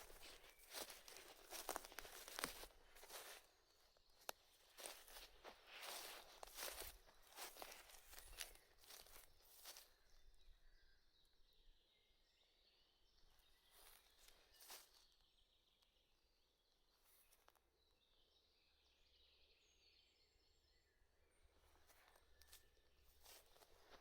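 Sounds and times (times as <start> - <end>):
distant birds chirping: 0.0 - 11.4.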